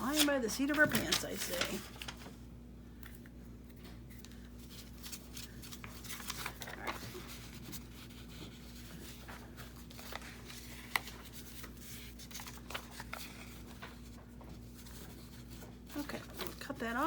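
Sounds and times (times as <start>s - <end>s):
paper rustling: 0.0s - 2.4s, 4.1s - 17.0s
faint steady hum: 0.0s - 17.0s.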